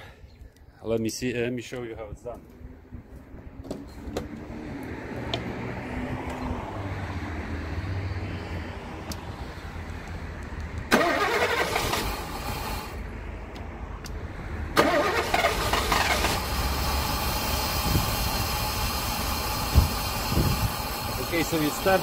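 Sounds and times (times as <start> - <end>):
engine cranking: 10.9 - 12.9, 14.8 - 22.0
engine idling: 14.8 - 22.0.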